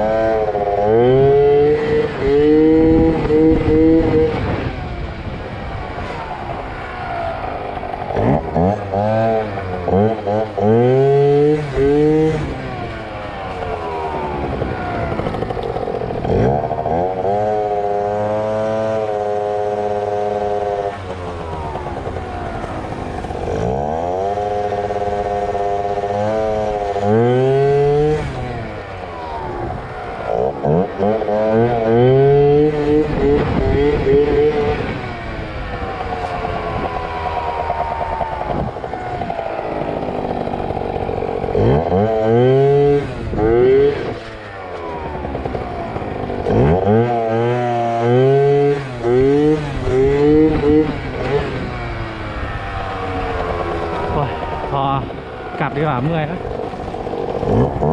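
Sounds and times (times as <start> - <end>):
scooter engine revving: 0.0 - 57.9.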